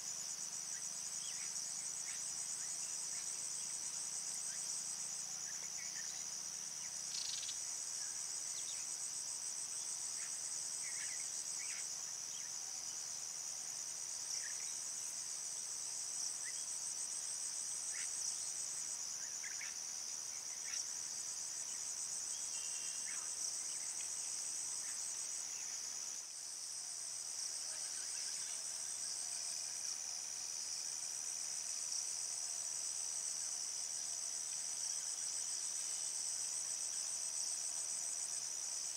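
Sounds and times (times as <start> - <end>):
insects trilling: 0.0 - 15.3.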